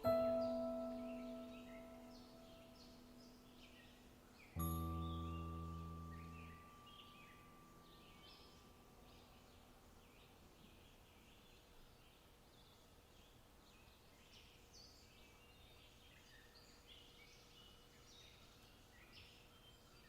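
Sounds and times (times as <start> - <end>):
low steady hum: 0.0 - 11.3
faint birdsong: 0.0 - 20.0.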